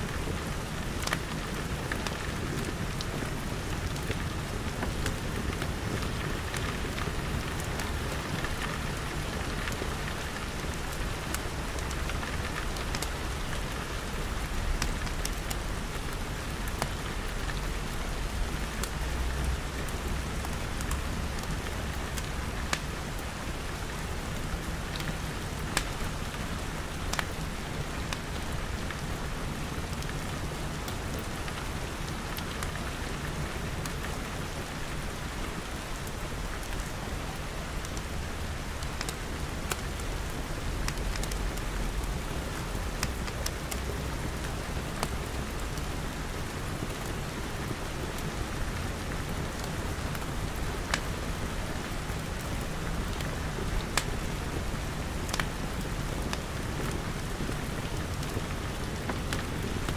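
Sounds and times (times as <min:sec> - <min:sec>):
rain pattering on glass: 0:00.1 - 0:59.9.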